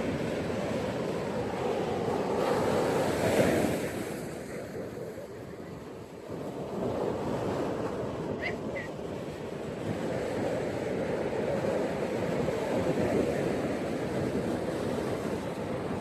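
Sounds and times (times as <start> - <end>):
ocean waves breaking on beach: 0.0 - 16.0.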